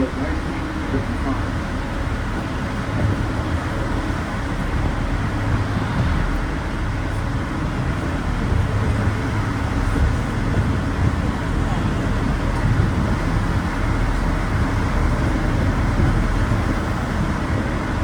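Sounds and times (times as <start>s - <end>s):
train rumbling on rack track: 0.0s - 18.0s.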